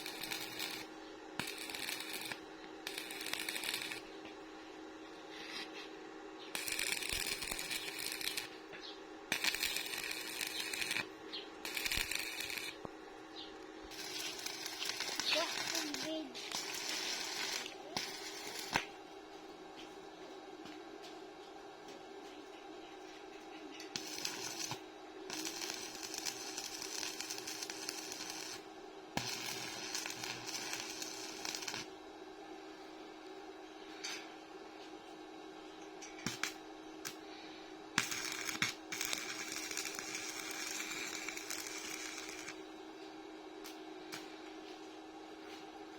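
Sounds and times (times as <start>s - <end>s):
welding arc crackling: 0.0s - 4.2s, 6.5s - 19.0s, 23.9s - 31.9s, 36.3s - 37.2s, 37.9s - 42.6s
steady low hum: 0.0s - 45.9s.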